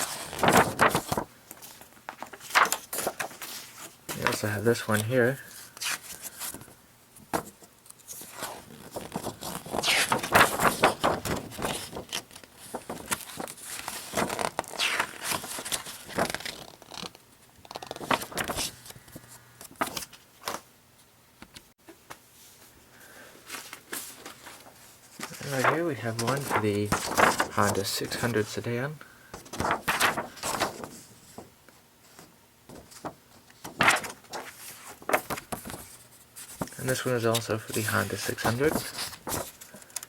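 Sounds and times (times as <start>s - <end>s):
paper rustling and crinkling: 0.0s - 20.7s, 23.4s - 28.6s, 29.4s - 31.5s, 32.1s - 40.0s.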